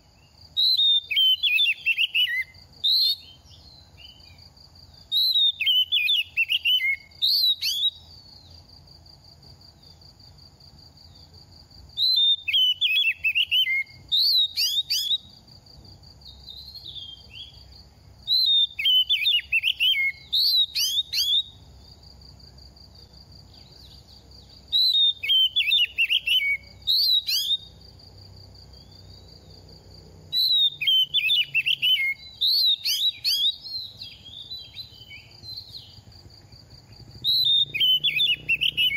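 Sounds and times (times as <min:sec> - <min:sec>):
magpie-robin singing whistled phrases: 0:00.5 - 0:04.4, 0:05.0 - 0:08.4, 0:12.0 - 0:15.3, 0:16.3 - 0:21.6, 0:24.6 - 0:27.8, 0:30.4 - 0:36.0, 0:37.2 - 0:38.9.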